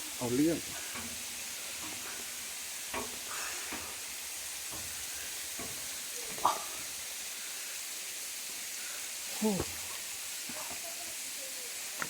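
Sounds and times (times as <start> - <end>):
waterfall rushing: 3.2 - 12.0.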